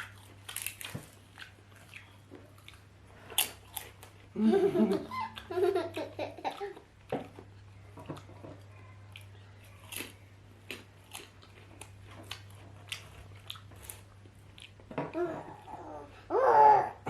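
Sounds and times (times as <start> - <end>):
chewing and mouth smacks: 0.0 - 4.3, 6.5 - 15.6
low electrical hum: 0.0 - 17.0.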